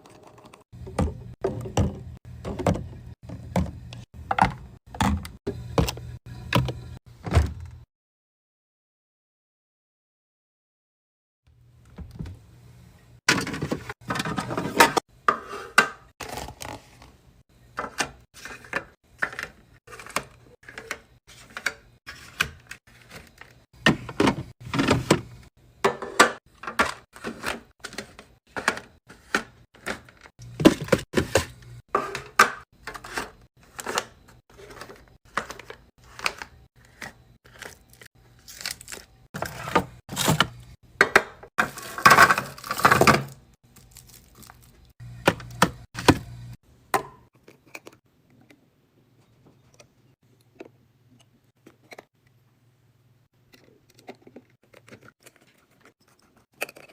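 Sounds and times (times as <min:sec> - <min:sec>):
food containers knocking and clicking: 0:00.2 - 0:06.0, 0:23.2 - 0:37.2, 0:39.4 - 0:43.4, 0:45.0 - 0:46.3.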